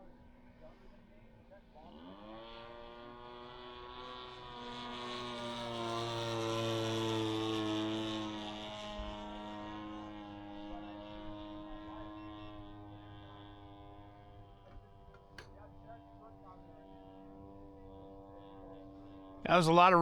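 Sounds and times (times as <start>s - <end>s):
model plane engine droning: 0.0s - 20.0s.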